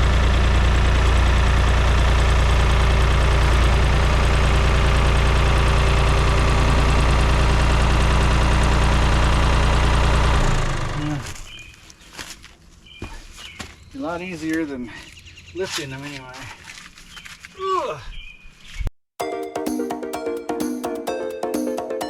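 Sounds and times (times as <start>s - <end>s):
tractor engine running: 0.0s - 11.6s.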